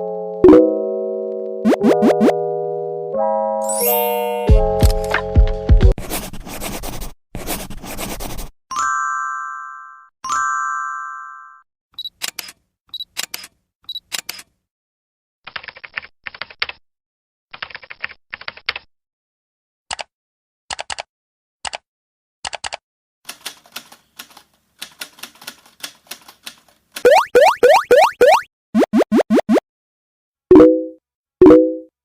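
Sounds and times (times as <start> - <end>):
rapid key-typing clatter: 15.5 - 16.8, 17.6 - 18.9, 20.7 - 21.0, 22.5 - 26.8.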